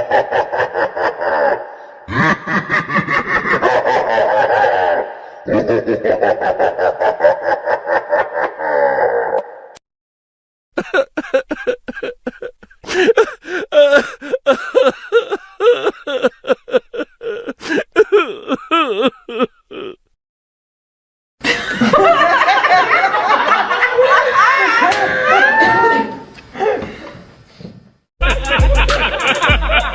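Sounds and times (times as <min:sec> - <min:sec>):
person laughing: 0:00.0 - 0:09.4, 0:10.8 - 0:20.2, 0:28.2 - 0:29.9
dense layered laughter: 0:00.0 - 0:09.7, 0:10.8 - 0:20.2, 0:21.4 - 0:25.9, 0:28.2 - 0:29.9.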